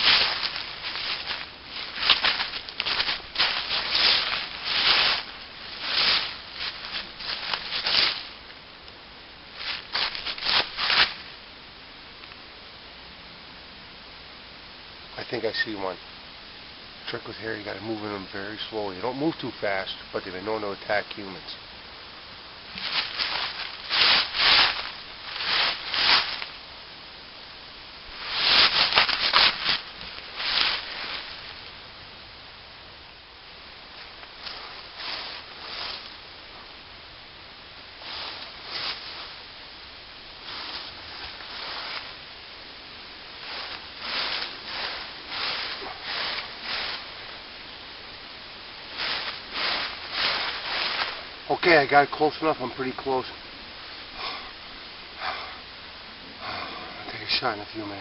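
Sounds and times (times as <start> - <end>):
footsteps crunching through dry leaves: 0.0 - 8.5, 9.5 - 11.4, 22.7 - 26.7, 28.0 - 32.0, 33.9 - 36.8, 37.8 - 55.3.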